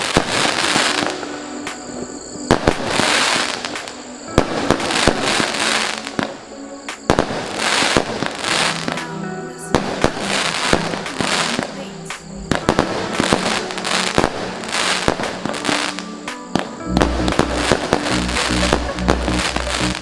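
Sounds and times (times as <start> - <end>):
fireworks bangs: 2.5 - 6.3.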